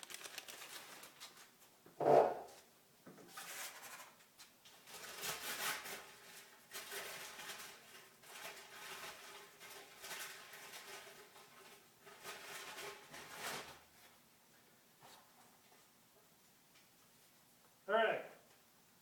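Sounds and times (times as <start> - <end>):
paper rustling: 0.0 - 1.6.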